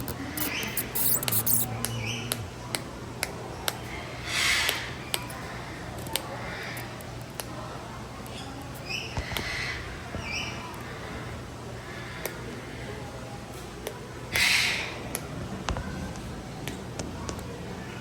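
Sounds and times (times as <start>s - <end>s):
birds chirping and clicking: 0.0s - 2.4s.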